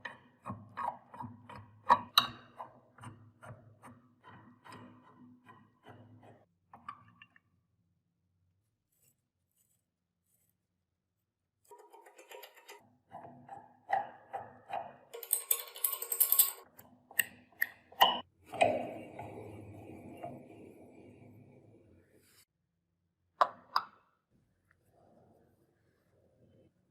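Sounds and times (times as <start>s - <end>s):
metallic clinks and rattles: 15.1s - 16.7s.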